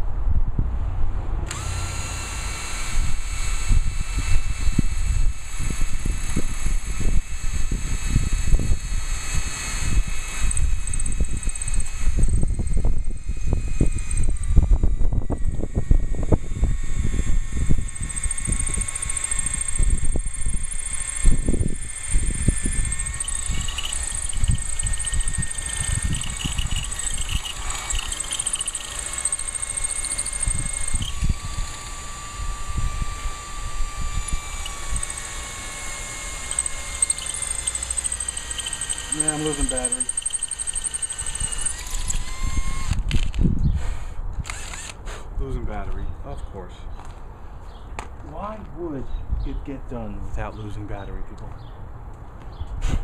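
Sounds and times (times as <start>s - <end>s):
wind buffeting microphone: 3.0s - 35.0s, 41.3s - 44.6s
high rapid chirping trills: 10.5s - 14.7s, 17.8s - 31.6s, 34.1s - 42.3s.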